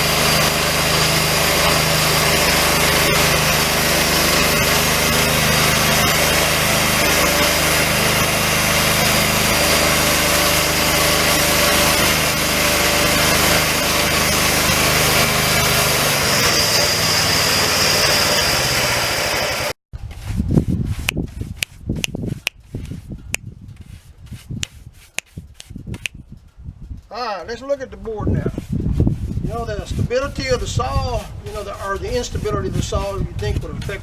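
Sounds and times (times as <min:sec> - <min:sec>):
bandsaw sawmill engine running: 0:00.0 - 0:19.8, 0:27.6 - 0:34.0
high whine: 0:00.0 - 0:19.8
saw blade cutting log: 0:00.0 - 0:26.2, 0:31.6 - 0:34.0.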